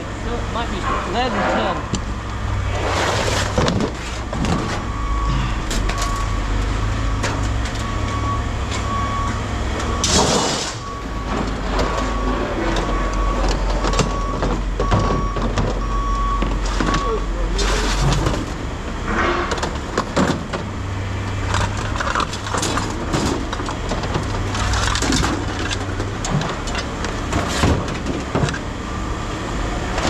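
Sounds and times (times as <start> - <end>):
diesel engine rumbling: 0.0 - 30.0
reversing alarm beeping: 4.0 - 18.3.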